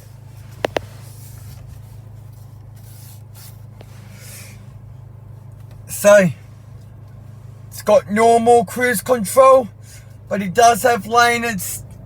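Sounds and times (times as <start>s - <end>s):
faint rubbing and rustling: 0.0s - 5.8s
steady low hum: 0.0s - 12.0s.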